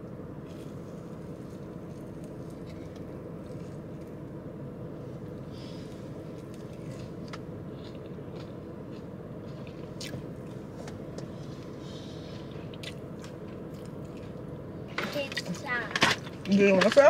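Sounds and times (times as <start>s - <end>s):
low background hum: 0.0s - 17.0s
person chewing food: 0.4s - 4.4s, 5.1s - 14.5s.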